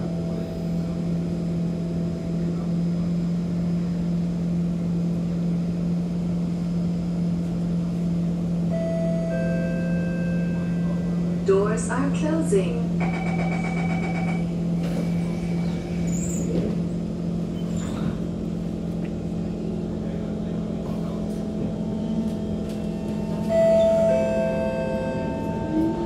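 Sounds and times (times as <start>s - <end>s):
electric train traction whine: 0.0s - 26.0s
train equipment hum: 0.0s - 26.0s
door closing warning tone: 13.0s - 16.4s, 22.8s - 26.0s.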